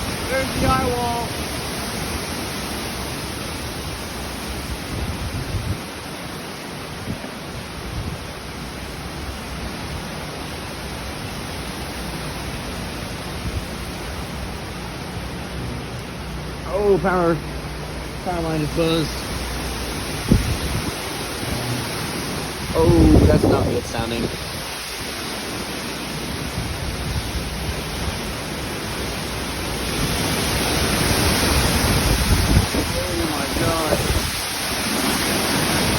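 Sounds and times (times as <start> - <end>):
hurricane wind blowing: 0.0 - 35.9.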